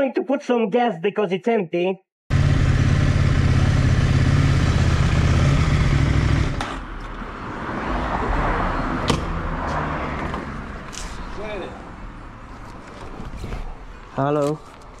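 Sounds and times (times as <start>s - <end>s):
motorcycle engine idling: 2.3s - 6.5s.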